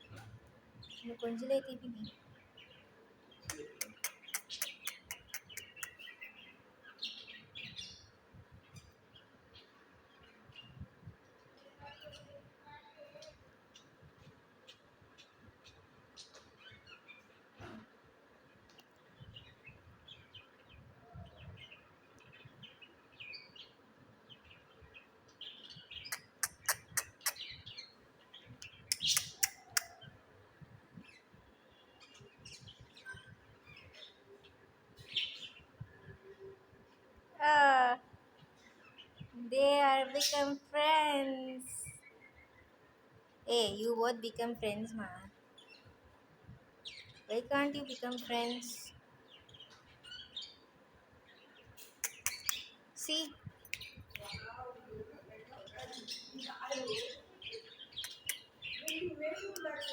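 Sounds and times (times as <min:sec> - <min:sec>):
budgerigars chirping and warbling: 0:02.6 - 0:08.0, 0:24.4 - 0:30.1, 0:51.3 - 0:52.8, 0:55.4 - 0:59.9
sharp clicks: 0:03.4 - 0:06.0, 0:26.1 - 0:27.5, 0:28.6 - 0:29.9, 0:51.8 - 0:52.7, 0:58.0 - 0:59.0.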